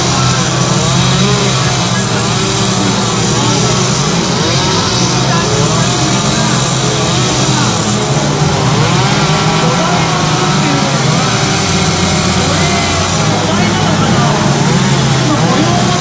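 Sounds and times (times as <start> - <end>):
chainsaw revving: 0.0 - 16.0.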